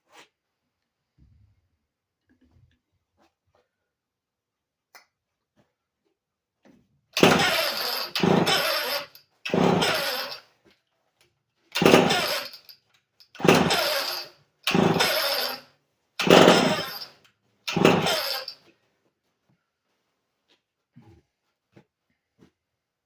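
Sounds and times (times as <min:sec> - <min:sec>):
chainsaw pull-start cranking: 0:07.2 - 0:10.5, 0:11.7 - 0:18.6.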